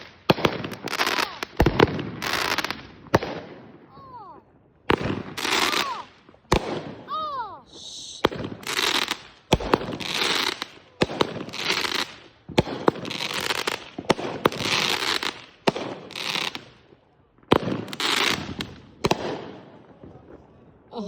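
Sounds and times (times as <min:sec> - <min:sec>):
fireworks hiss: 0:00.0 - 0:02.8, 0:05.0 - 0:06.2, 0:07.6 - 0:12.3, 0:13.0 - 0:15.4
fireworks bangs: 0:00.0 - 0:21.0.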